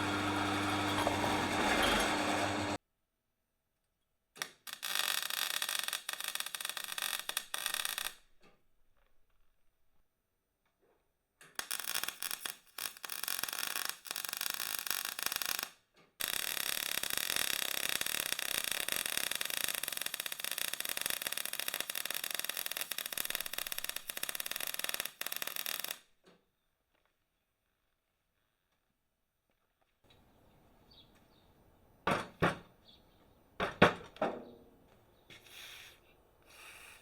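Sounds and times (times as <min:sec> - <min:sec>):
power tool cutting steel plate: 0:00.0 - 0:02.8, 0:16.2 - 0:25.9.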